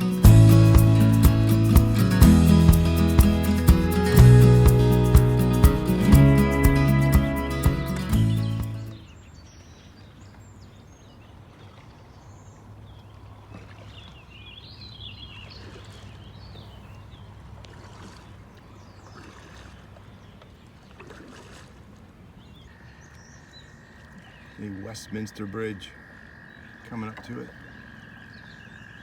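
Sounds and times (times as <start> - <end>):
music: 0.0 - 8.9
water against canoe hull: 0.0 - 25.3, 26.7 - 28.0.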